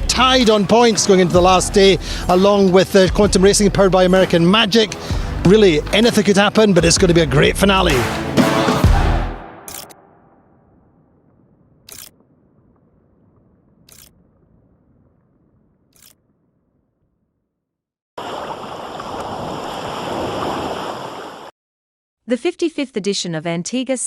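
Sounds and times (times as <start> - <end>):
camera shutter clicks: 9.7 - 10.0, 11.9 - 12.1, 13.9 - 14.1.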